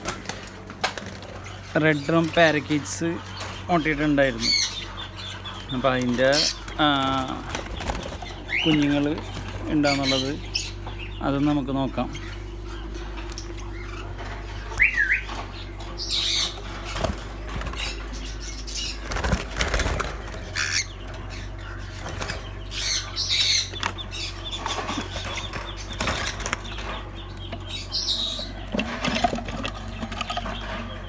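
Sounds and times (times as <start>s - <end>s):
steady low hum: 0.0s - 31.0s
parrot chirp: 12.1s - 17.0s, 20.4s - 28.7s
parrots fluttering wings: 16.3s - 22.9s, 23.8s - 27.0s.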